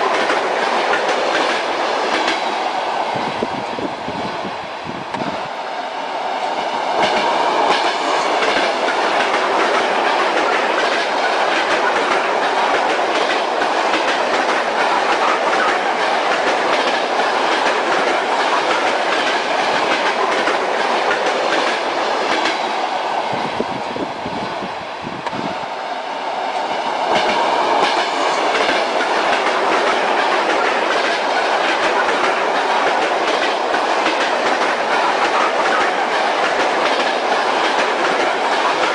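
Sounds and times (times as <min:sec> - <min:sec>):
wheels clacking over rail joints: 0:00.0 - 0:02.7, 0:06.9 - 0:22.7, 0:27.0 - 0:38.9
train rumble: 0:00.0 - 0:38.9.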